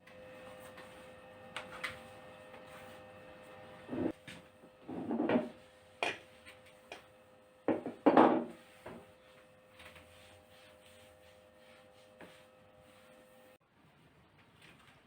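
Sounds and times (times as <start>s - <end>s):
dishes and utensils knocking: 7.7s - 8.5s.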